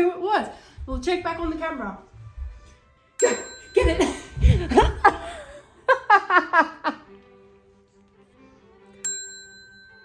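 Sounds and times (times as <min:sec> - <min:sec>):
faint background music: 0:00.0 - 0:10.0
woman laughing: 0:03.2 - 0:07.1.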